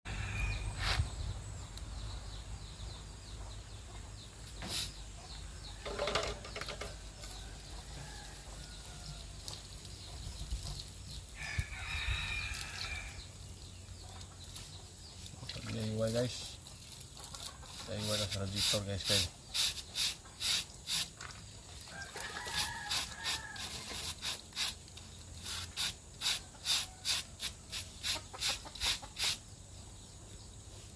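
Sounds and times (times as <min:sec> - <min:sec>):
rooster crowing: 0:00.1 - 0:00.7, 0:11.4 - 0:13.2, 0:21.9 - 0:23.8
chickens clucking: 0:27.8 - 0:29.5.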